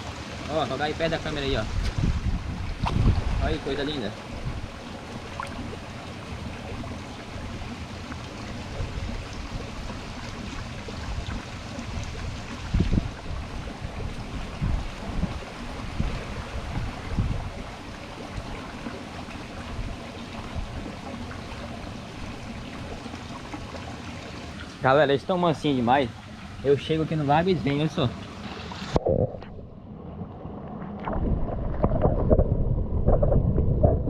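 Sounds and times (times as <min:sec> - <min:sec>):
water sloshing and trickling: 0:00.0 - 0:34.0
dull low thumps: 0:01.6 - 0:03.4.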